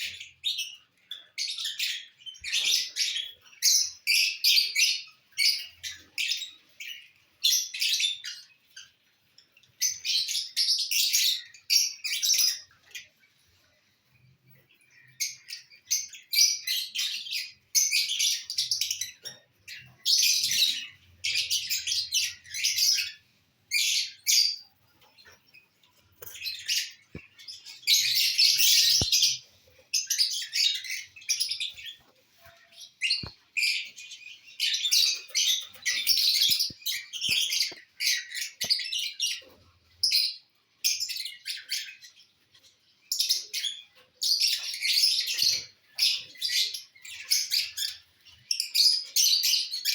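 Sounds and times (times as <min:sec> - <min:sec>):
lovebirds chirping shrilly: 0:26.2 - 0:39.5.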